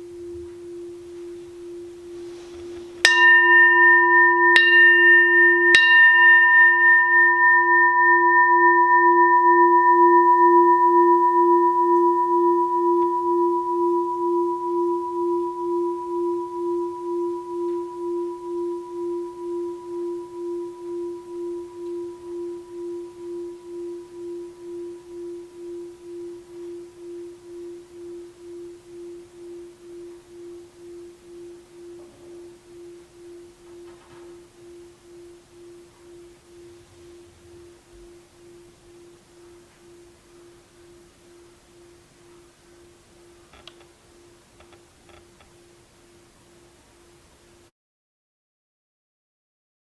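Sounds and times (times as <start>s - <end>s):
bowl bell ringing: 0.0s - 44.8s.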